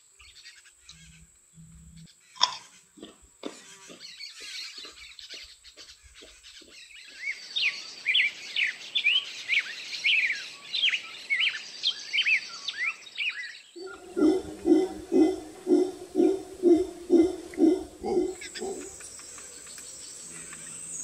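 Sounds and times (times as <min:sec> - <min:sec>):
birds chirping: 0:13.7 - 0:21.0
faint low pulses: 0:13.8 - 0:19.2.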